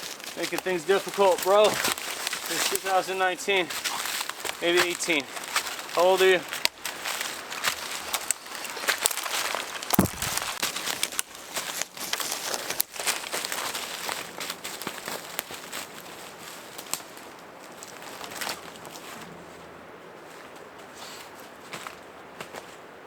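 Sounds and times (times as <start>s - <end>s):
dry leaves and twigs crunching: 5.3s - 18.5s
heavy knock: 10.0s - 10.6s.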